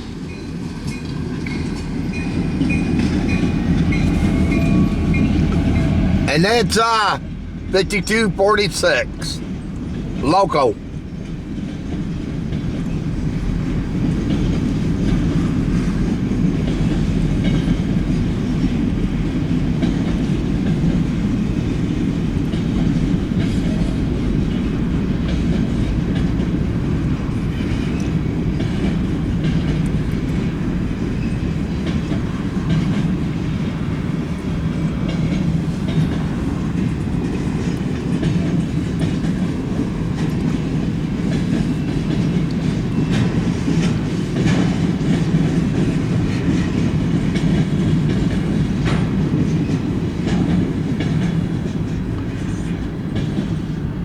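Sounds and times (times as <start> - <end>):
freight train rumbling past: 0.0 - 54.0
wheels clacking on rails: 0.0 - 54.0.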